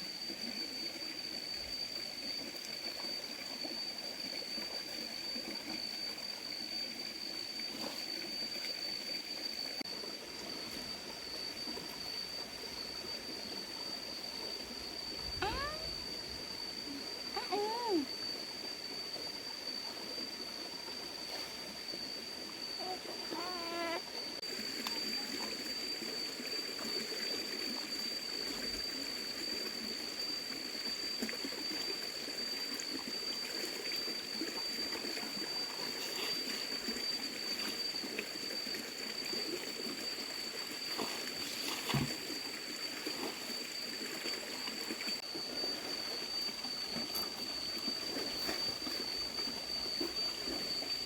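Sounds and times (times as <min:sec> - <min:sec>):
stream water trickling: 0:00.0 - 0:51.0
high-pitched whine: 0:43.5 - 0:51.0.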